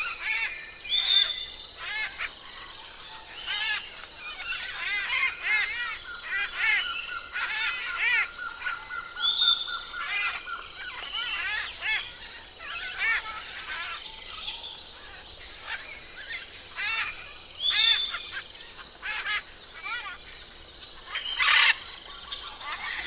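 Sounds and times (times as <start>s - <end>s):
parrots chirping: 15.1s - 20.2s, 21.0s - 23.0s.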